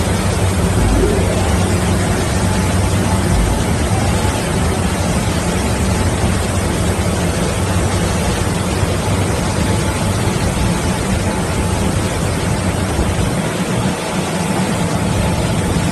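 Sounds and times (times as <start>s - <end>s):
low motor hum: 0.4s - 5.8s.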